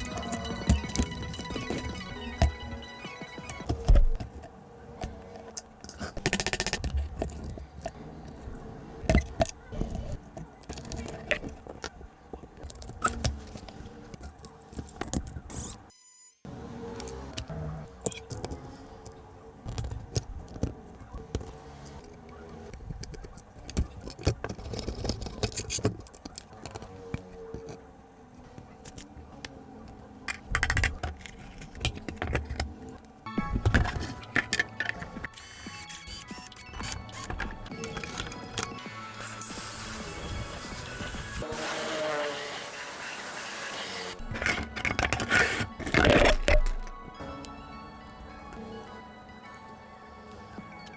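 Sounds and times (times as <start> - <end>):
small hard parts clicking: 29.9 - 41.2, 44.2 - 49.0.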